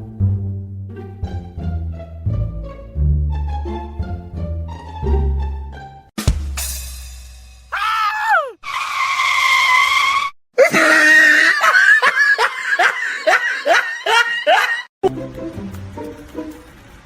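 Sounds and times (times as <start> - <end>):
high-pitched shrieking: 7.8 - 11.6.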